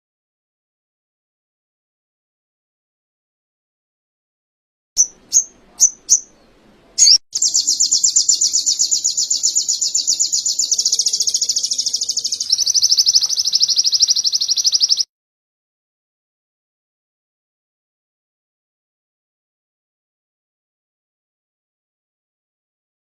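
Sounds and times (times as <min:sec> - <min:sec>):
songbird chirping and trilling: 0:05.0 - 0:15.1.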